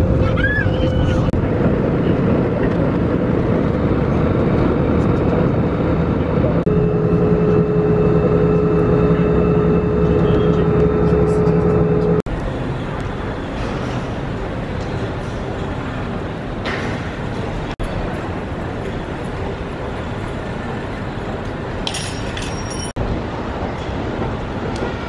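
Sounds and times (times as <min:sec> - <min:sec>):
steady hum: 0:00.0 - 0:13.4
moving vehicle rumble: 0:00.0 - 0:25.0.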